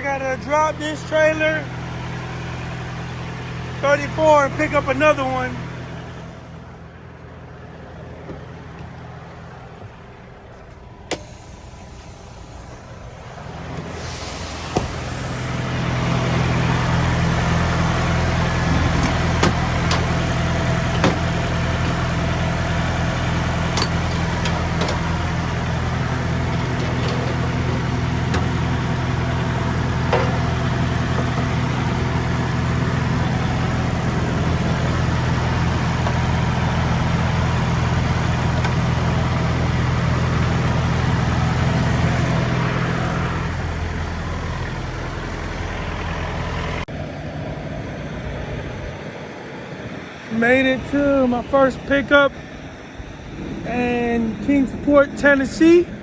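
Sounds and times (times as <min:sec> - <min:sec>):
diesel truck engine humming: 0:00.0 - 0:56.0.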